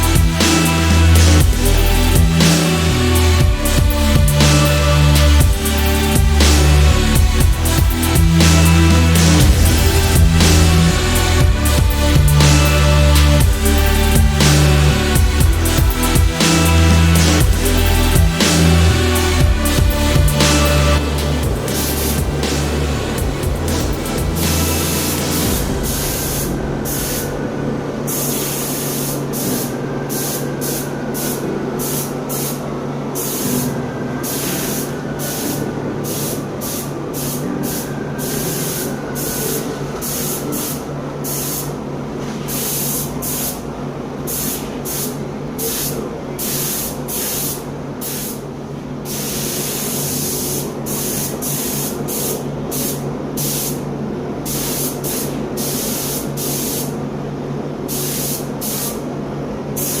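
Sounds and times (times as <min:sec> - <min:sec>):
spray bursts: 0:00.0 - 0:33.6, 0:34.2 - 0:41.8, 0:44.3 - 0:48.4, 0:49.1 - 0:53.8, 0:54.5 - 0:56.9, 0:57.9 - 0:59.0
steady low hum: 0:00.0 - 0:42.4.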